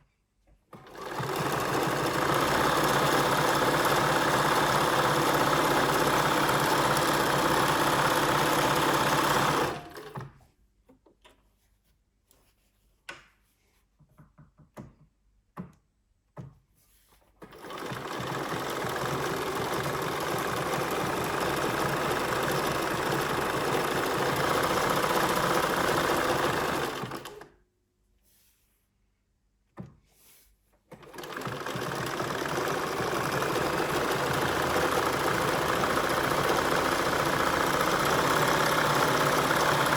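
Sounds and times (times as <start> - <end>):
sewing machine running: 0.7 - 10.3, 17.4 - 27.5, 30.9 - 39.9.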